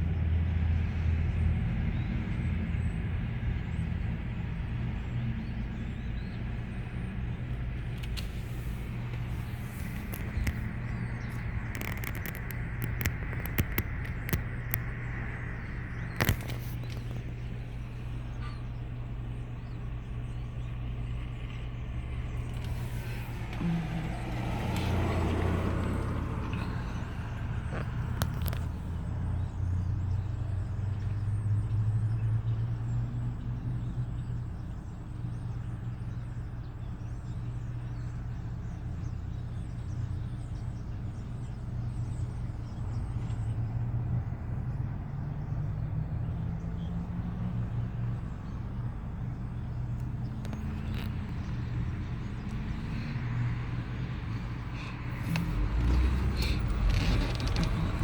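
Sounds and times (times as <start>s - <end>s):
car engine rumbling: 0.0s - 58.0s.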